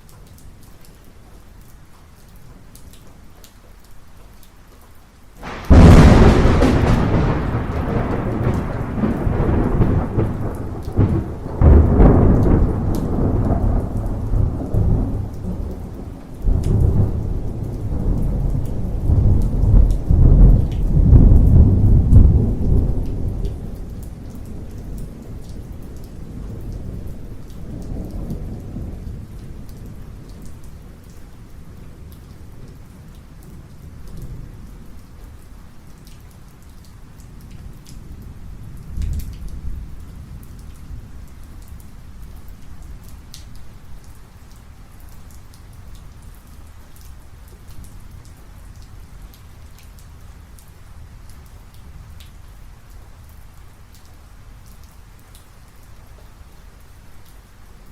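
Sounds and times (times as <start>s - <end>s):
steady rain: 0.0s - 57.9s
thunder rumbling: 5.4s - 30.8s.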